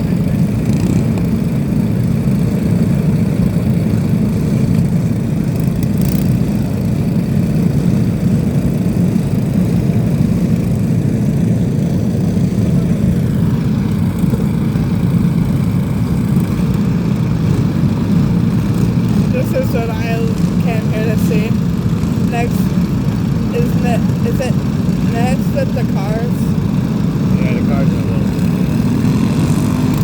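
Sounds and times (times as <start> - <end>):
lawn mower engines droning: 0.0 - 30.0.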